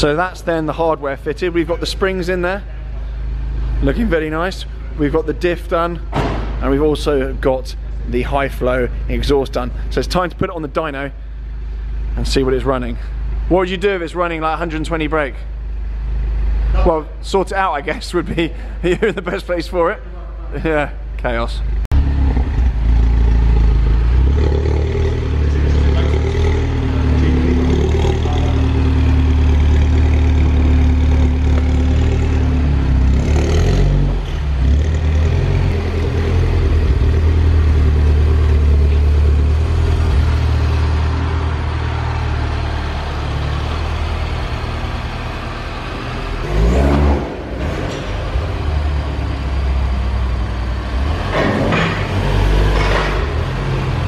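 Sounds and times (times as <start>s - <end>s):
car engine exhaust revving: 21.9s - 54.0s.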